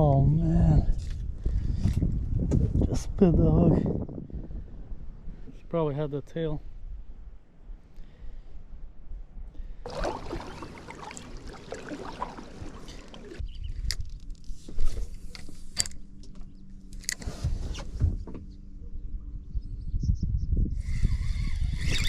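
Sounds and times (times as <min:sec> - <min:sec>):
fishing gear rustling: 0:09.9 - 0:16.2.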